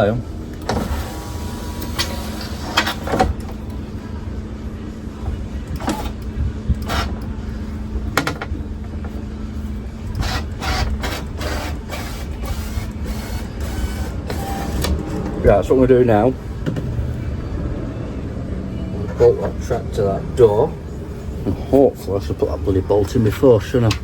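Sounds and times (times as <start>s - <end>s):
steady low hum: 0.0s - 24.0s
parts knocking and clattering: 8.0s - 9.2s.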